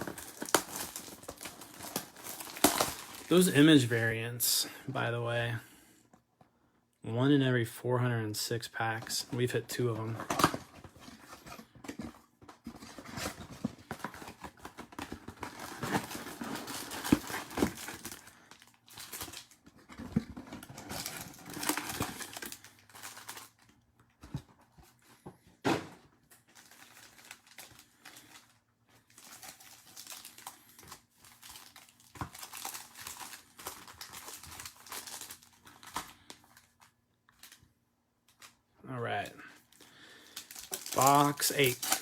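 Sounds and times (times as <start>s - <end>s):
plastic wrapping crinkling and tearing: 0.0s - 4.1s, 12.6s - 23.8s, 26.4s - 42.0s.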